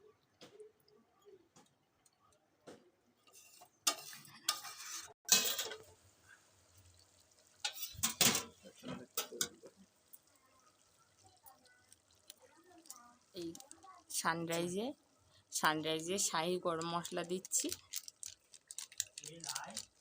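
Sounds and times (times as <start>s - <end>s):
metal cookware clattering and scraping: 3.2s - 5.9s, 7.6s - 9.7s.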